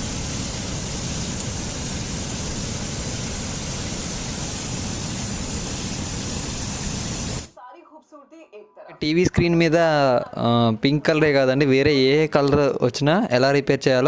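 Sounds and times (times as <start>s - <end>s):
loud static hiss: 0.0s - 7.6s.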